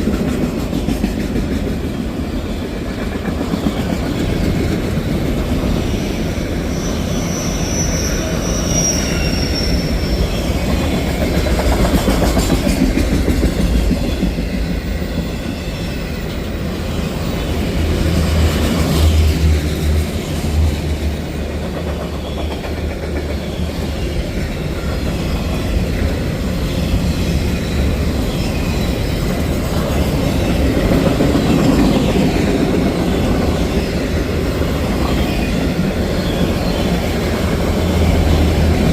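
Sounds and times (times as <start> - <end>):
train wheels clickety-clack: 0.0 - 38.9
high-pitched wheel squeal: 6.7 - 10.3.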